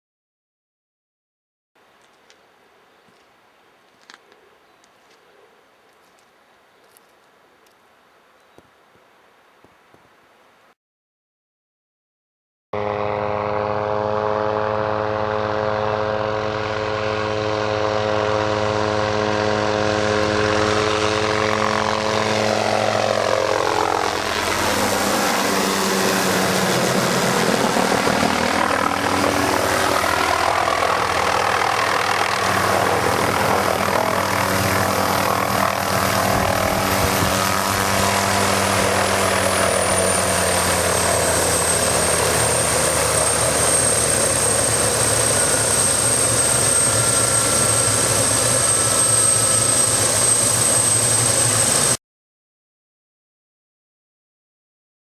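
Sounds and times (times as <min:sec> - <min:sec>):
helicopter engine and rotor: 0:16.4 - 0:52.0
high whine: 0:23.5 - 0:52.0.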